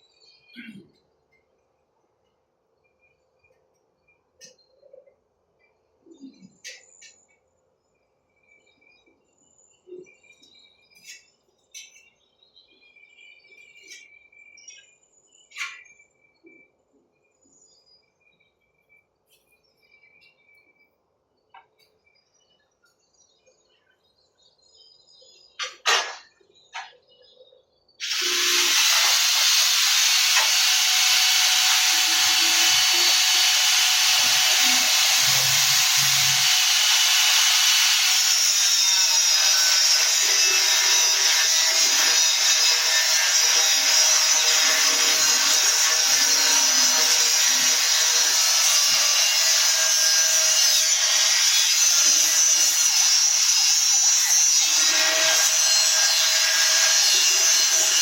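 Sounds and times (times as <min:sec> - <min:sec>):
power tool hissing: 0:28.0 - 0:50.9.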